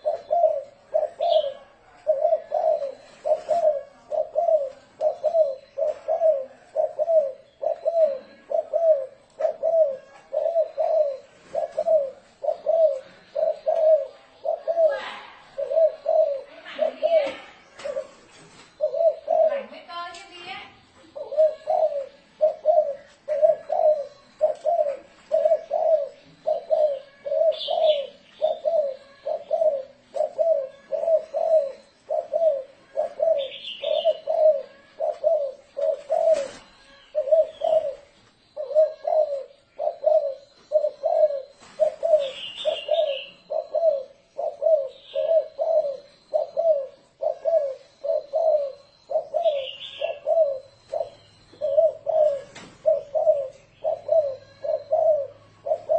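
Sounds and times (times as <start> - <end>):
dove cooing: 0.0 - 55.9.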